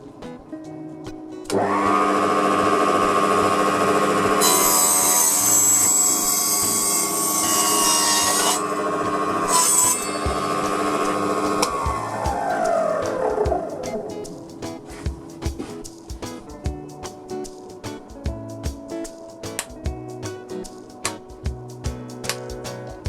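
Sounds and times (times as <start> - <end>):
saw blade cutting wood: 4.0 - 14.1.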